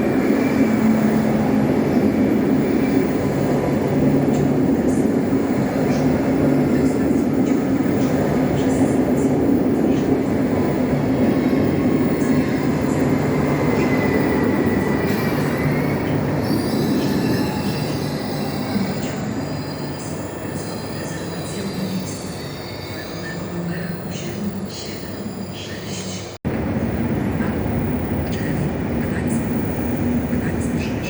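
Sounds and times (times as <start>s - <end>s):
electric train rumbling: 0.0s - 31.0s
train wheels squealing: 9.9s - 26.3s.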